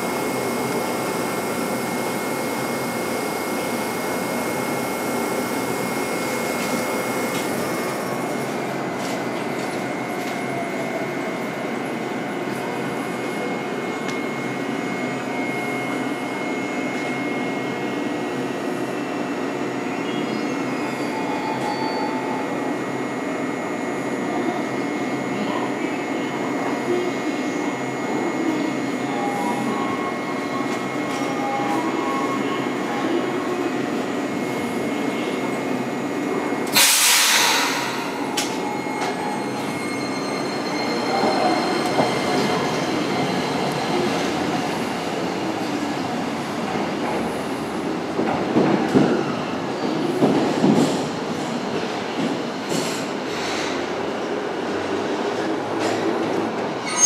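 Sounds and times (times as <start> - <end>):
tram wheels on rails: 0.0 - 18.8, 28.5 - 57.0
tram rumbling: 0.0 - 23.4, 24.3 - 57.0
loud hiss: 36.8 - 38.0.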